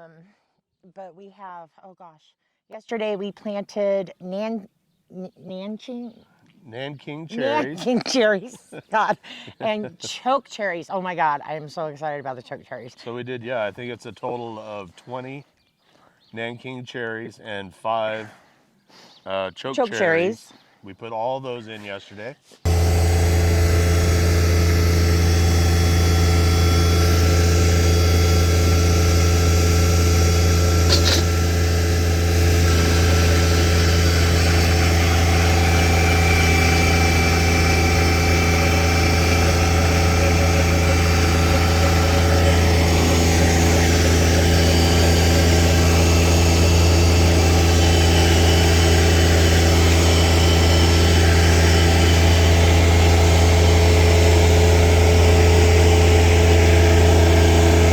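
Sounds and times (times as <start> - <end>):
engine humming steadily: 7.4 - 7.8, 22.7 - 57.9.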